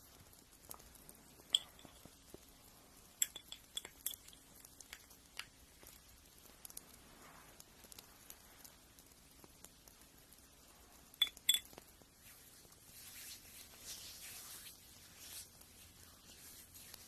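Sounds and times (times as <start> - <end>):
faint scratch: 12.3 - 17.0.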